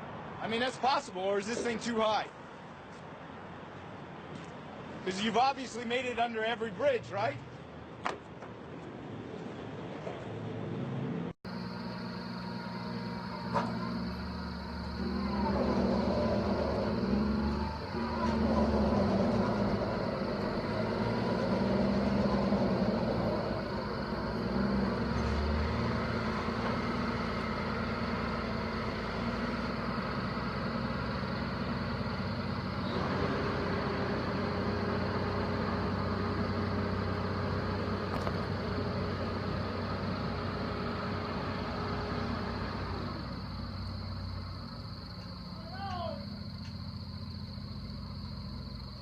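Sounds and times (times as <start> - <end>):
heavy vehicle engine running: 11.4 - 49.0
steady hum: 11.5 - 25.1.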